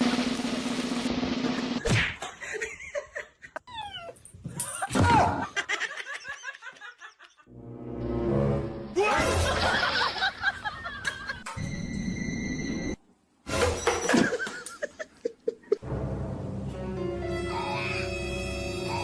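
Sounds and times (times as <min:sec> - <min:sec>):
people laughing: 0:04.7 - 0:07.5, 0:09.1 - 0:11.5, 0:14.1 - 0:15.8
background music: 0:07.5 - 0:10.4, 0:15.8 - 0:19.0.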